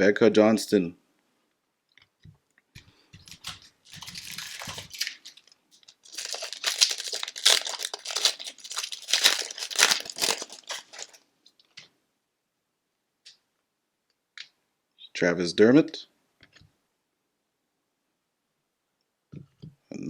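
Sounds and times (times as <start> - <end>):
wrapper crinkling: 3.2 - 11.2.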